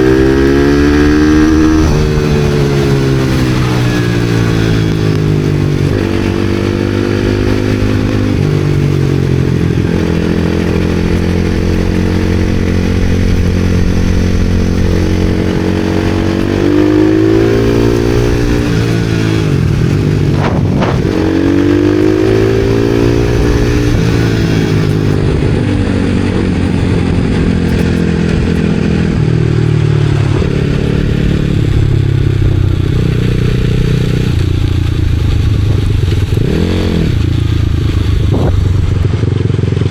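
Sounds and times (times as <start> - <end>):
motorcycle engine revving: 0.0 - 39.9
sharp clatter: 17.9 - 25.5.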